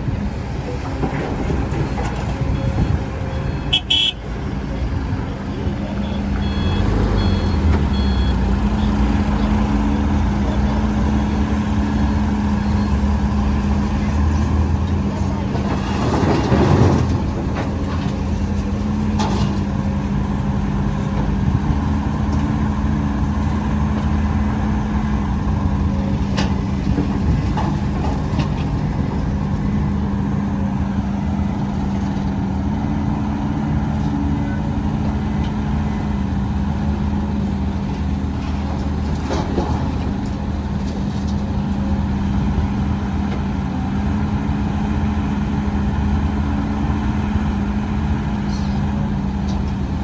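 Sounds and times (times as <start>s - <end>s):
diesel machinery running: 0.0s - 50.0s
short high beeps: 6.0s - 8.4s.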